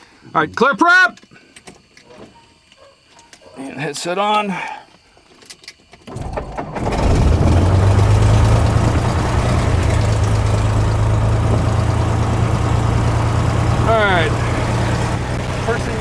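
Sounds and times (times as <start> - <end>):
engine starter cranking: 5.6 - 16.0
piston engine idling: 6.2 - 16.0.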